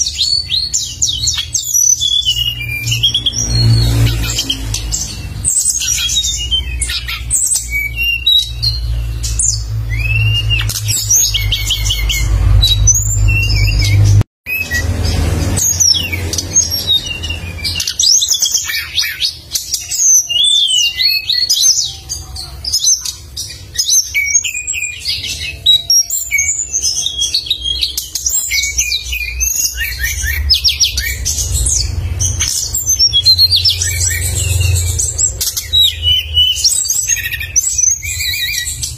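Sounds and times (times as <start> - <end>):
songbird chirps and trills: 0.0 - 38.9.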